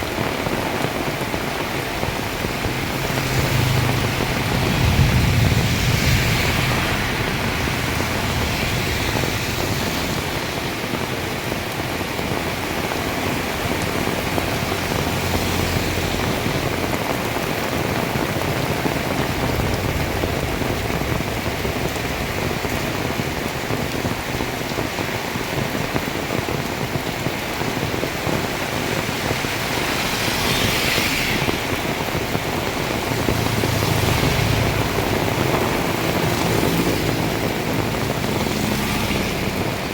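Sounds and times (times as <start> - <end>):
heavy rain pouring: 0.0 - 39.9
tyres hissing on wet road: 0.0 - 39.9
vehicle engine hum: 1.9 - 10.3, 28.4 - 39.9.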